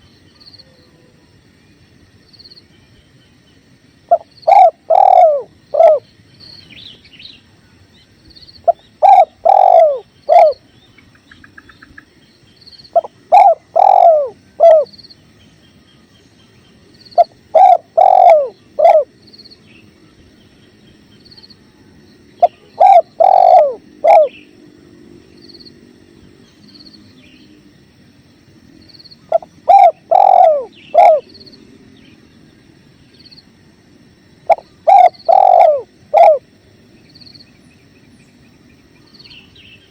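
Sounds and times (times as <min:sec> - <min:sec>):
small birds chirping: 0:01.6 - 0:24.6, 0:28.8 - 0:33.5, 0:34.4 - 0:39.9
dove cooing: 0:04.1 - 0:06.0, 0:08.6 - 0:10.6, 0:12.9 - 0:14.9, 0:17.2 - 0:19.2, 0:22.4 - 0:24.4, 0:29.3 - 0:31.5, 0:34.5 - 0:36.5.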